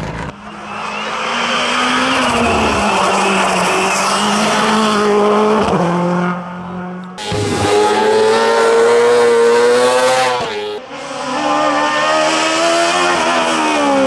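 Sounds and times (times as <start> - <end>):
race car engine at full throttle: 0.0 - 14.0
tyre squeal: 0.3 - 5.0, 7.2 - 10.8.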